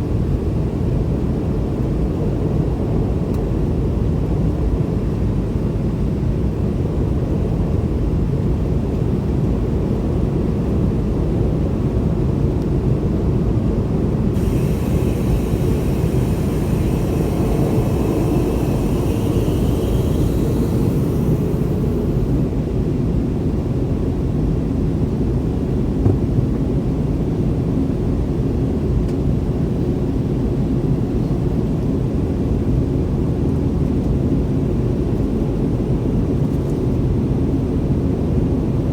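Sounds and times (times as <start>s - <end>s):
jet engines low roar in cabin: 0.0s - 38.9s
higher hiss with faint tones: 14.4s - 22.4s.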